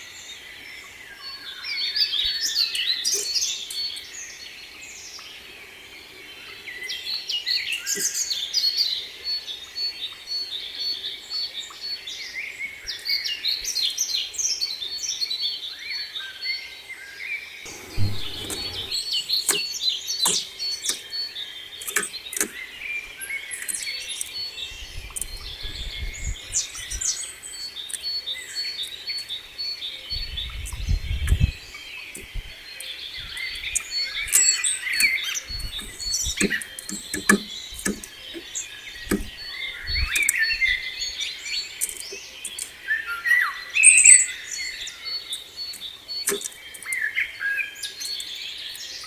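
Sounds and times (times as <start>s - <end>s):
songbirds chirping and singing: 0.1s - 49.0s
low rumble: 17.7s - 19.2s
sharp clicks: 41.8s - 42.8s, 45.3s - 47.0s.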